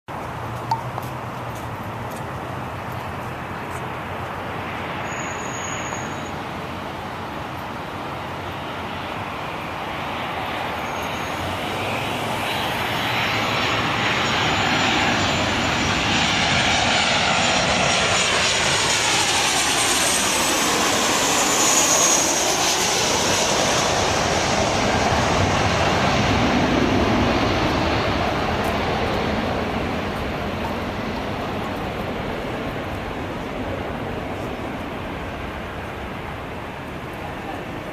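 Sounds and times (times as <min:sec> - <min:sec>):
jet engine whine passing by: 0:00.3 - 0:37.9.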